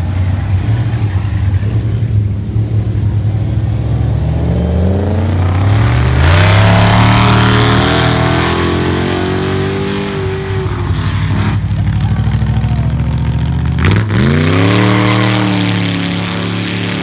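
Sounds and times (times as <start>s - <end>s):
car engine revving: 0.0s - 17.0s
spinning tyres hissing: 4.8s - 17.0s.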